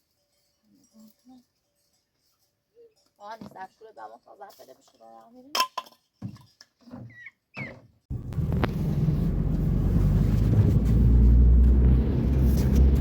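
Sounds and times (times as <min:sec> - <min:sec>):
vehicle engine and road noise: 0:08.1 - 0:13.0.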